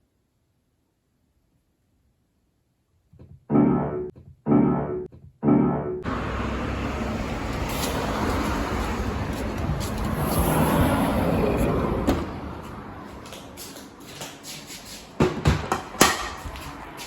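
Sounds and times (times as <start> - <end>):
piano notes: 3.5 - 7.2.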